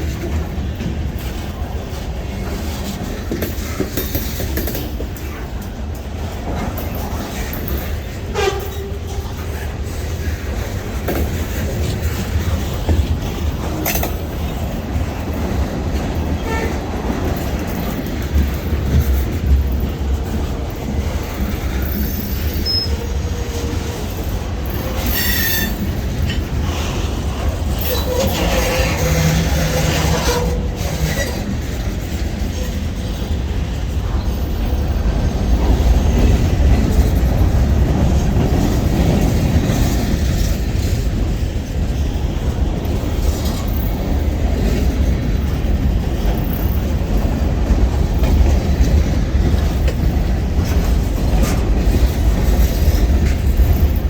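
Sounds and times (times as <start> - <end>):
freight train rumbling past: 0.0 - 54.0
metallic wheel squeals: 22.0 - 23.2, 24.7 - 25.9.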